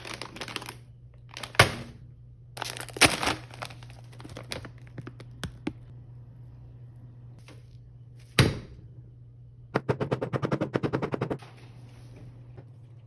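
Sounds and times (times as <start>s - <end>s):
plastic snack bag crackling: 0.0s - 1.6s, 2.6s - 5.4s.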